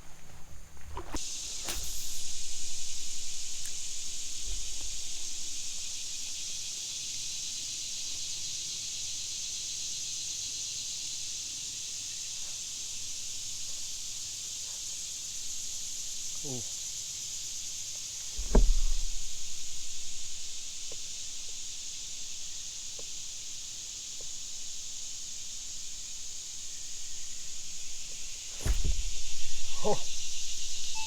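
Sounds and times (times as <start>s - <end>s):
insects buzzing chorus: 0.0s - 31.0s.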